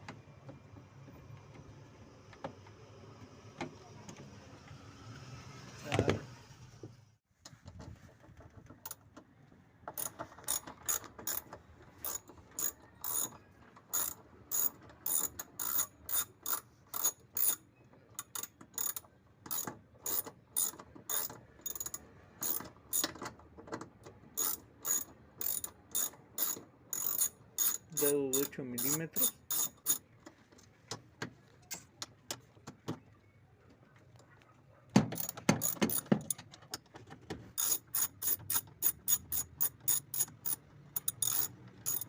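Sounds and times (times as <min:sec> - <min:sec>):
ratchet wrench clicking: 0:10.0 - 0:13.3, 0:13.9 - 0:17.6, 0:18.2 - 0:23.2, 0:24.4 - 0:30.0, 0:35.2 - 0:36.4, 0:37.6 - 0:42.0.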